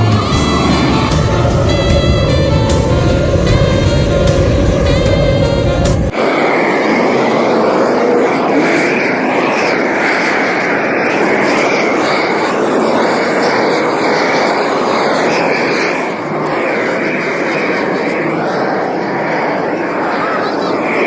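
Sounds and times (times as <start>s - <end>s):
rushing drone of vehicles: 0.0s - 21.0s.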